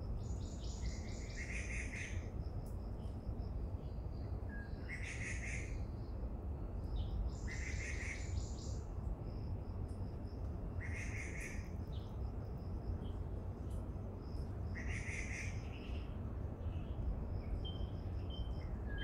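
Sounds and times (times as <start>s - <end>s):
steady low rumble: 8.2s - 19.0s.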